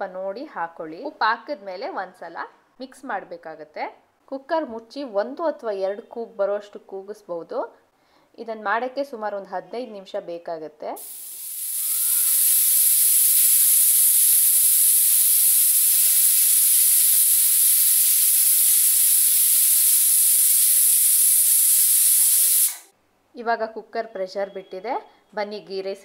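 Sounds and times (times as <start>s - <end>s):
pressure cooker steam hissing: 11.0s - 22.9s.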